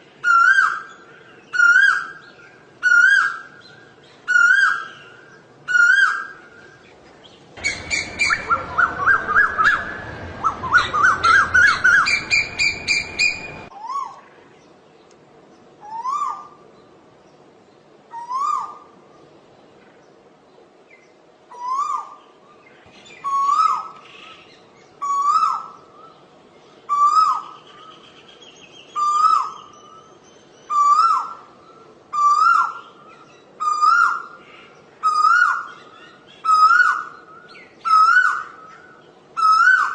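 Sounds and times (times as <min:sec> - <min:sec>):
koel calling: 0:07.6 - 0:14.2.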